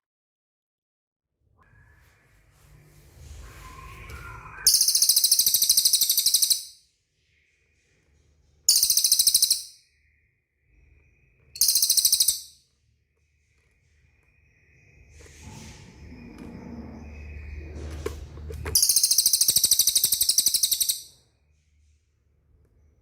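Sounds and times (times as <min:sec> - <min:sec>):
soft bird chirps: 0:01.6 - 0:23.0
songbird buzzy trills: 0:04.7 - 0:06.8, 0:08.7 - 0:09.8, 0:11.6 - 0:12.6, 0:18.8 - 0:21.1.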